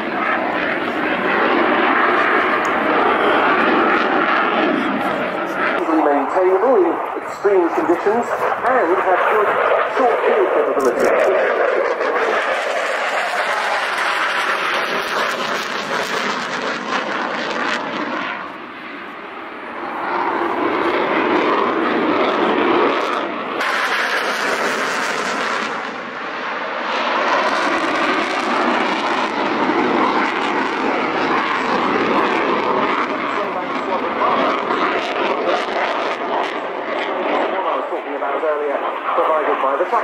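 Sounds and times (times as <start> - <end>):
jet aircraft engine roar: 0.0 - 40.0.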